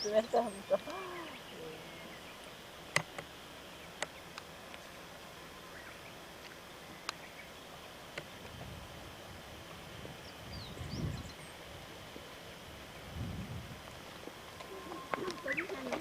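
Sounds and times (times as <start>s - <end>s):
steady high hiss: 0.0s - 16.0s.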